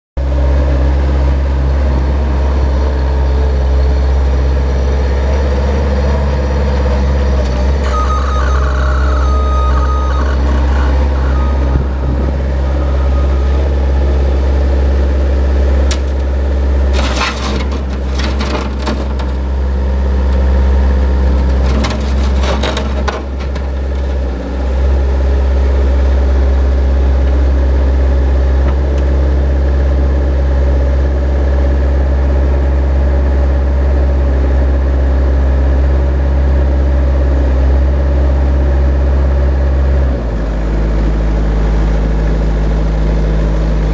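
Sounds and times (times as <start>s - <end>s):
diesel engine running: 0.2s - 43.9s
loader clatter: 0.9s - 26.1s.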